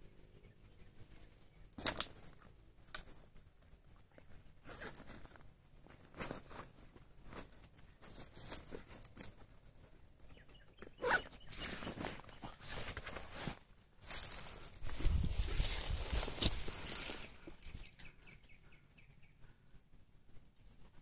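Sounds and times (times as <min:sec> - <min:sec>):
backpack zipper closing: 0:11.0 - 0:11.9
fabric and straps rustling: 0:11.0 - 0:17.8.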